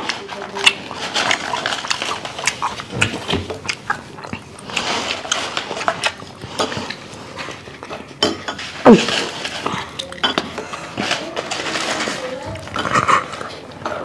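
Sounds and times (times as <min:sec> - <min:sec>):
people chewing: 0:00.0 - 0:14.0
cutlery clicking on plates: 0:05.1 - 0:14.0.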